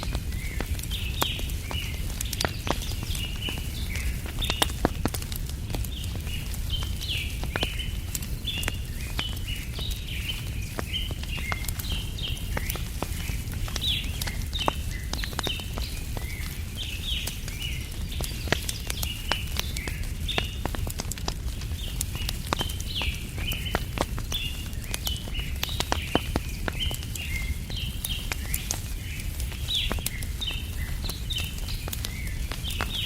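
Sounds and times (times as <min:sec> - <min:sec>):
small birds chirping: 0:00.0 - 0:33.0
wood fire crackling and popping: 0:00.0 - 0:33.0.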